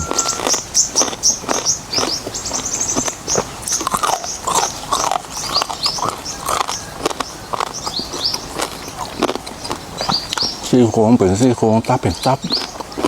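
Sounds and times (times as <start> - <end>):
high animal chirps: 0.0 - 3.1, 3.7 - 10.6.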